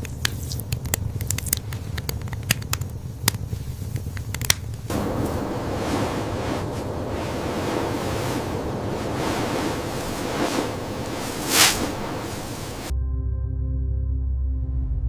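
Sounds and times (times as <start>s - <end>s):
wind rushing: 4.9s - 12.9s
wind whoosh: 4.9s - 12.9s.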